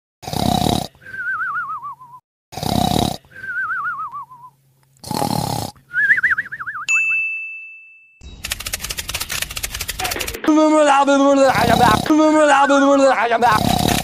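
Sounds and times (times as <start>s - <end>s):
cartoon snoring: 0.2s - 1.3s, 2.5s - 3.6s, 5.0s - 5.8s, 11.5s - 12.3s, 13.4s - 14.0s.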